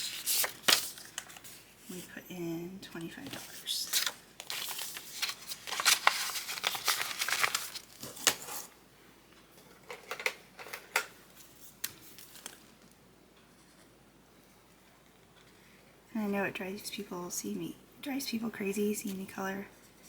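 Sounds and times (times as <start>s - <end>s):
paper rustling and scratching: 0.0s - 2.1s, 3.1s - 8.7s.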